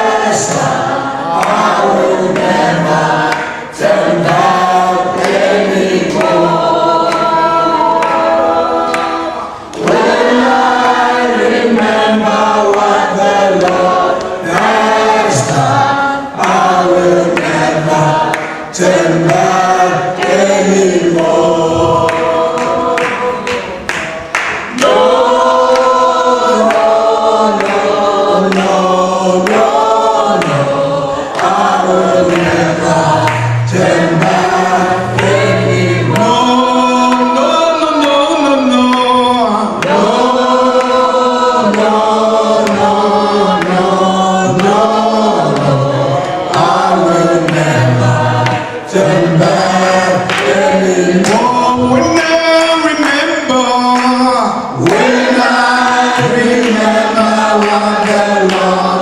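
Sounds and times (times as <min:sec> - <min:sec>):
choir singing: 0:00.0 - 0:59.0
moving bass line: 0:31.5 - 0:37.5.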